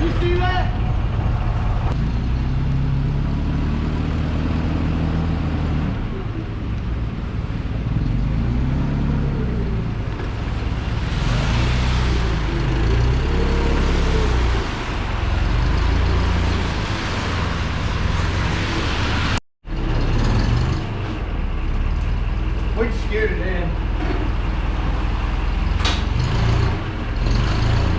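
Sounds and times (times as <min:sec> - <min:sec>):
vehicle engine revving under load: 0:07.5 - 0:22.0, 0:25.5 - 0:27.9.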